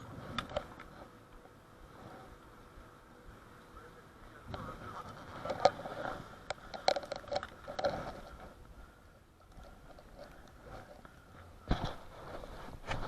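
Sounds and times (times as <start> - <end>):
close-up clicks crunches and rustles: 0.0 - 1.6, 4.5 - 8.6, 9.4 - 13.0.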